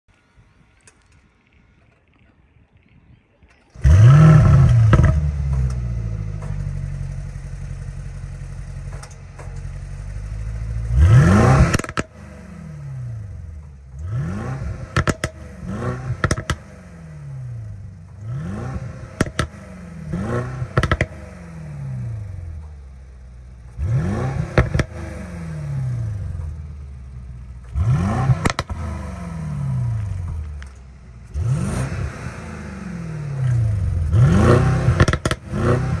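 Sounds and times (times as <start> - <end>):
exhaust cracks: 0.1 - 36.0
engine throttle blips: 3.6 - 36.0
engine cold start revving: 3.7 - 6.8
engine idling: 3.7 - 12.2, 19.0 - 36.0.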